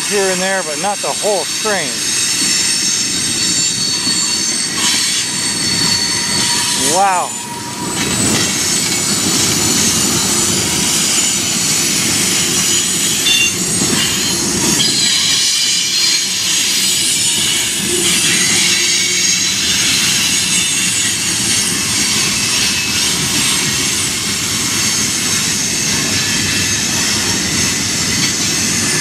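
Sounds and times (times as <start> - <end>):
rumble of wheels on rail: 0.0 - 29.0
train wheels squealing: 0.0 - 29.0.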